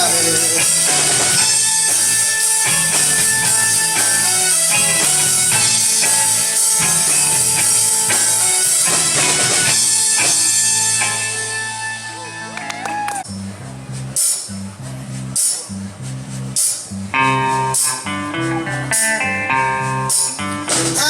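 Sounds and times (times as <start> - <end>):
rock band instrumental: 0.0 - 14.6, 16.5 - 21.0.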